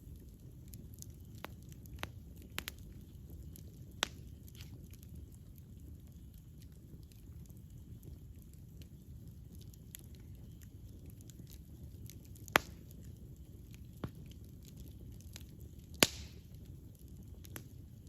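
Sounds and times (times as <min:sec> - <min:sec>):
campfire crackles and pops: 0:00.0 - 0:18.0
low steady fire noise: 0:00.0 - 0:18.0.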